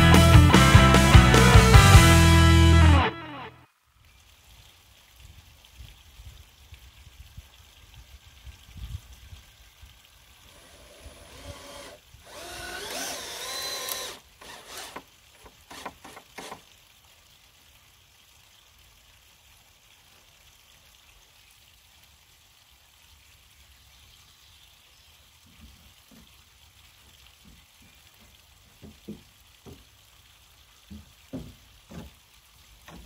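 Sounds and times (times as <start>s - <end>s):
cordless drill whining: 10.5s - 16.6s.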